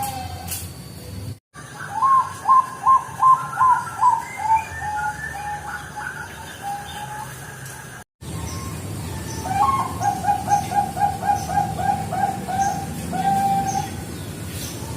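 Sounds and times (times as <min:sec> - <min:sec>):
dove cooing: 0:01.6 - 0:08.0, 0:08.7 - 0:14.0.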